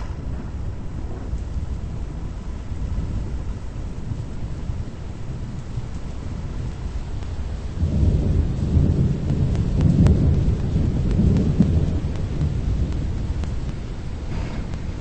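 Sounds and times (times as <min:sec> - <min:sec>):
rolling thunder rumble: 0:00.0 - 0:15.0
sharp ticks: 0:08.7 - 0:15.0.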